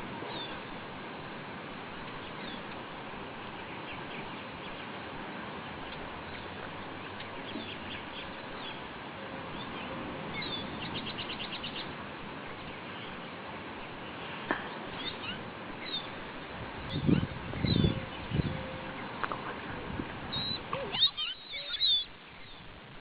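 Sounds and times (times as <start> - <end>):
bird chirping: 0.3 - 0.7, 2.1 - 2.8, 5.7 - 8.9, 9.5 - 19.2, 20.3 - 22.7.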